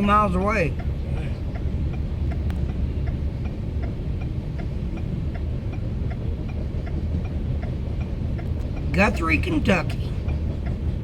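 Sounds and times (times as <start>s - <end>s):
faint regular ticking: 0.0s - 11.0s
freight train rumbling: 0.0s - 11.0s.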